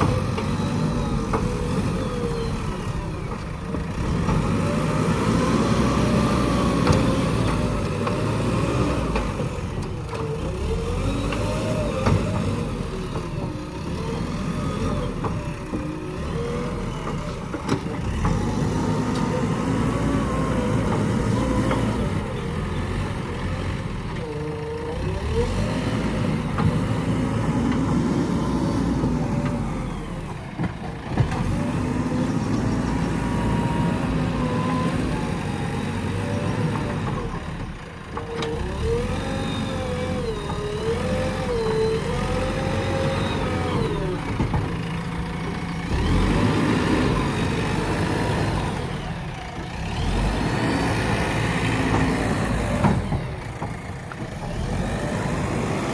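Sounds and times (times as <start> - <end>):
diesel engine under varying load: 0.0 - 55.9.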